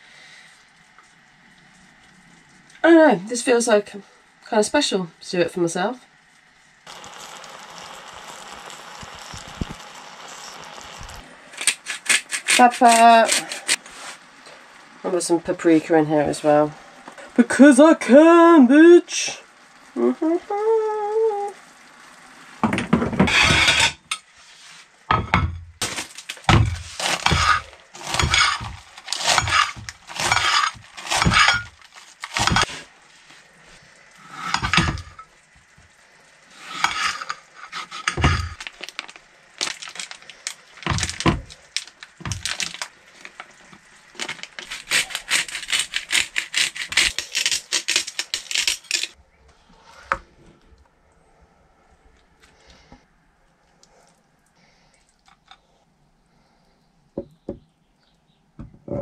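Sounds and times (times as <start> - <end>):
knife cutting vegetables on board: 11.6 - 13.8.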